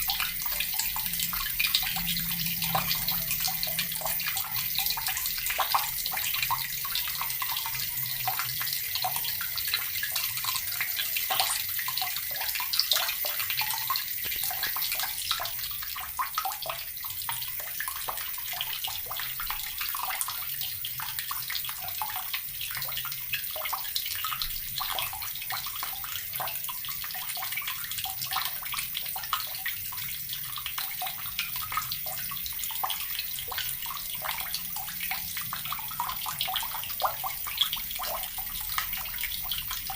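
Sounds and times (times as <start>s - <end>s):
tap water splashing: 12.3s - 16.4s.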